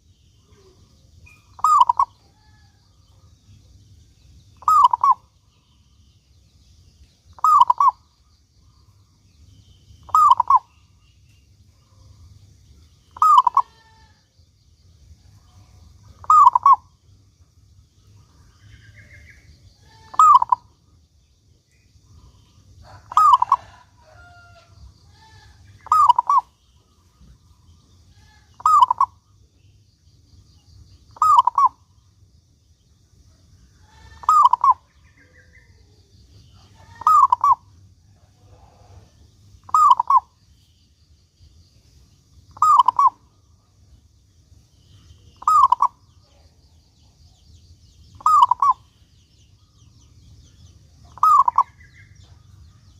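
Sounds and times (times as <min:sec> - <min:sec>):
dove cooing: 0:00.6 - 0:02.6, 0:04.6 - 0:05.3, 0:07.4 - 0:08.0, 0:10.1 - 0:10.7, 0:13.2 - 0:14.0, 0:16.2 - 0:16.9, 0:19.8 - 0:20.7, 0:22.8 - 0:24.4, 0:25.1 - 0:26.5, 0:28.2 - 0:29.2, 0:31.2 - 0:31.8, 0:33.9 - 0:34.9, 0:36.6 - 0:40.3, 0:42.6 - 0:43.3, 0:45.4 - 0:46.0, 0:48.2 - 0:48.8, 0:51.2 - 0:52.4.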